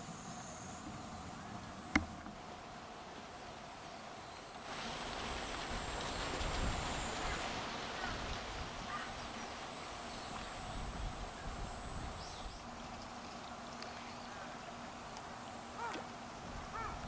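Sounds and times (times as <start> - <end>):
cicadas buzzing: 0.0 - 17.0
wind rumbling on microphone: 4.7 - 13.6, 16.4 - 17.0
short bird calls: 15.7 - 16.1, 16.7 - 17.0.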